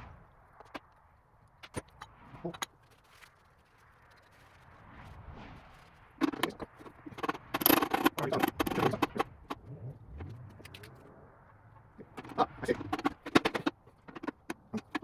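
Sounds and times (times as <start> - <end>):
metal parts clinking and scraping: 6.2 - 9.6, 12.0 - 15.0.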